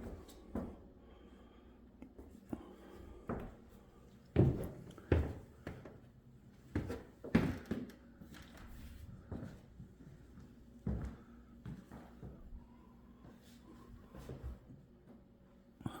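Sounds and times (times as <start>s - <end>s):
footsteps on indoor floor: 4.4s - 6.0s, 8.8s - 12.5s.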